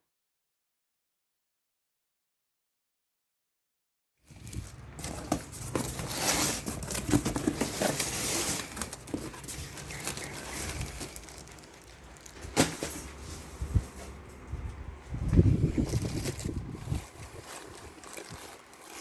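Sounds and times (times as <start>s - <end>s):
rustling and crinkling: 4.3s - 19.0s.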